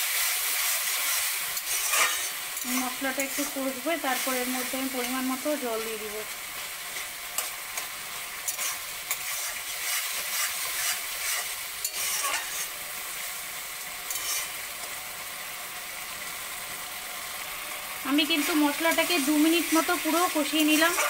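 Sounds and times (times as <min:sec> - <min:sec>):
curry sizzling in oil: 0:00.0 - 0:21.0
metal spatula scraping pan: 0:01.1 - 0:03.6, 0:07.0 - 0:12.8, 0:14.1 - 0:14.6, 0:20.8 - 0:21.0.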